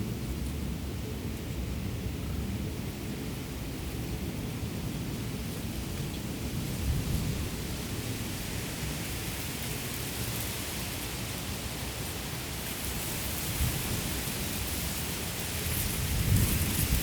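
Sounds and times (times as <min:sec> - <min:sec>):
wind rumble on microphone: 0:00.0 - 0:17.0
rice stalks rustling in wind: 0:05.2 - 0:17.0.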